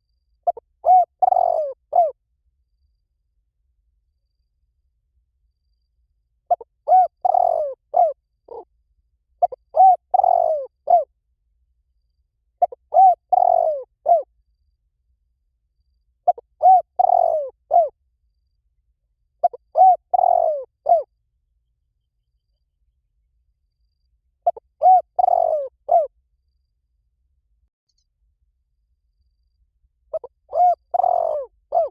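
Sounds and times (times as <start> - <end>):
dove cooing: 0.5 - 2.2, 6.5 - 8.7, 9.4 - 11.1, 12.6 - 14.3, 16.2 - 17.9, 19.4 - 21.1, 24.5 - 26.1, 30.1 - 31.9.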